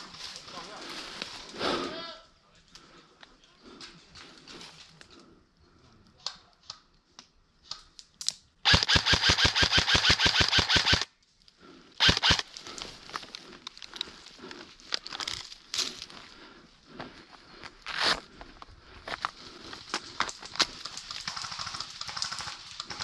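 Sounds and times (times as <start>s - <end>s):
airsoft rifle firing bursts: 8.7s - 11.1s, 12.0s - 12.5s, 20.8s - 23.0s.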